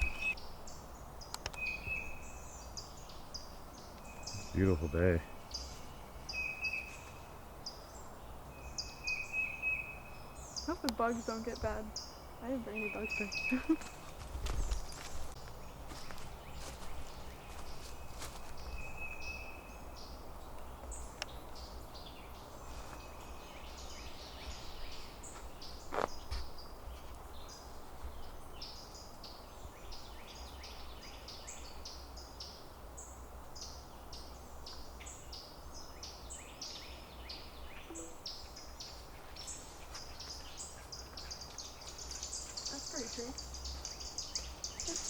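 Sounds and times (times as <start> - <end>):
birds chirping and calling: 0.0 - 15.1, 33.6 - 45.0.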